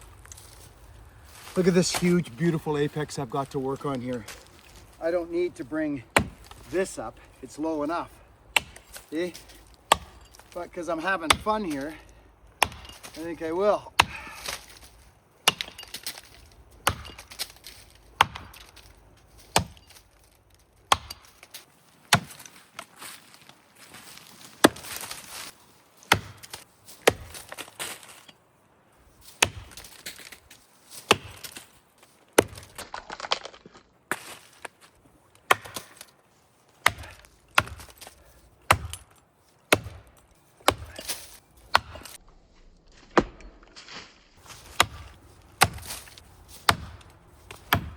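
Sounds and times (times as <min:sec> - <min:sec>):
axe chopping tree trunk: 0:06.1 - 0:06.7, 0:08.5 - 0:12.0, 0:12.6 - 0:20.0, 0:20.9 - 0:22.5, 0:24.6 - 0:25.1, 0:26.1 - 0:28.0, 0:29.3 - 0:31.6, 0:32.4 - 0:34.4, 0:35.4 - 0:36.1, 0:36.8 - 0:42.2, 0:43.0 - 0:43.6, 0:44.4 - 0:47.9
wood cracking: 0:06.1 - 0:28.3, 0:32.3 - 0:36.2, 0:36.8 - 0:42.2, 0:42.9 - 0:47.9.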